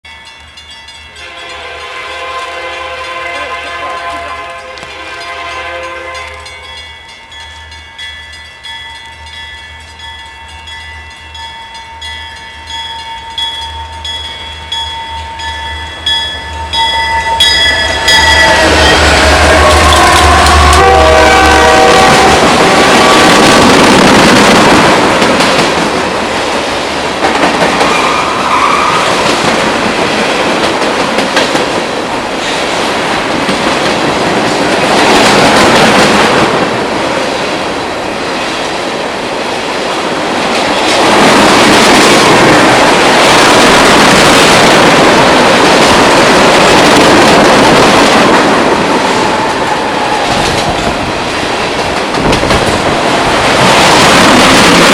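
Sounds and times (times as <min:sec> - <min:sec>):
train wheels clacking on rails: 0:00.1 - 0:37.4, 0:39.8 - 0:54.9
train horn: 0:01.2 - 0:06.7, 0:16.0 - 0:23.7.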